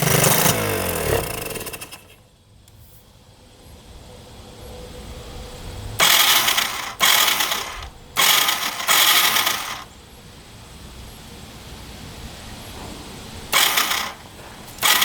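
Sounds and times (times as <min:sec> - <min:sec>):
electric starter cranking: 0:00.0 - 0:02.2, 0:06.0 - 0:09.9, 0:13.5 - 0:15.0.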